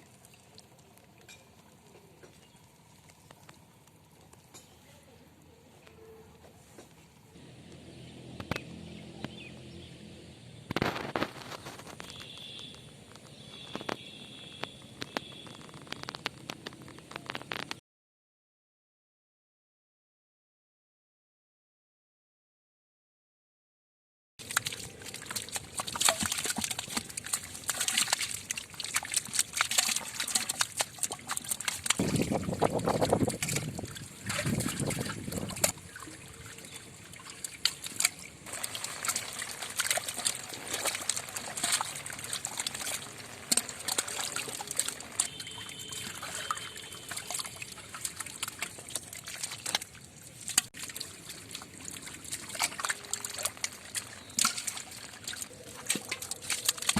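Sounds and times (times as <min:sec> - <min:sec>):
water splashing and sloshing: 0:00.0 - 0:04.8, 0:10.6 - 0:17.8, 0:24.4 - 0:56.9.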